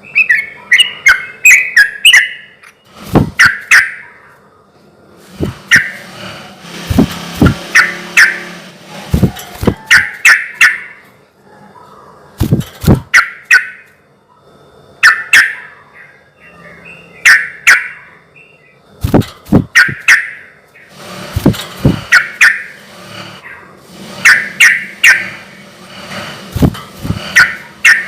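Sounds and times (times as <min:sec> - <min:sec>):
bulbul chirping: 0:19.5 - 0:20.9.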